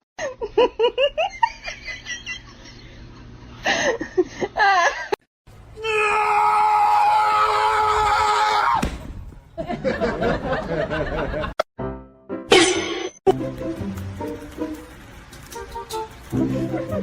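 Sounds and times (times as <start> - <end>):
long steady scream: 5.8 - 8.8.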